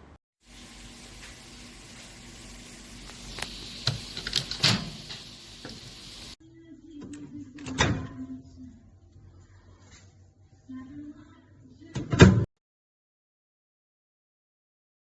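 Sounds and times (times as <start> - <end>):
steady hiss: 0.4 - 6.4.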